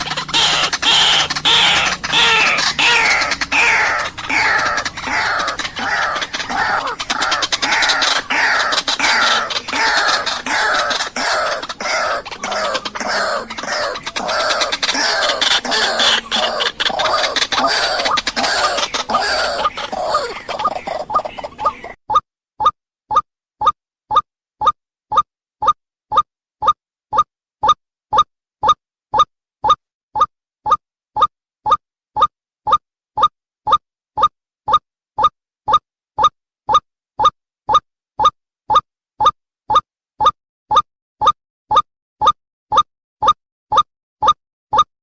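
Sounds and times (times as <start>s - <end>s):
waterhen croaking call: 0.0s - 22.0s.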